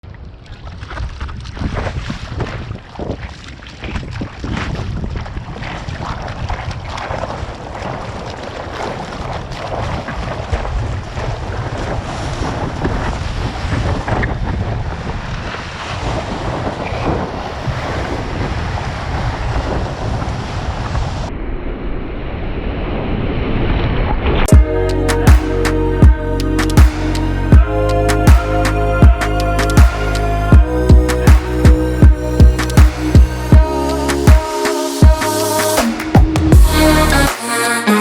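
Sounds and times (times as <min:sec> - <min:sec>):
wind buffeting microphone: 0:00.0 - 0:21.4
ocean surf breaking: 0:14.9 - 0:21.3, 0:32.7 - 0:38.0.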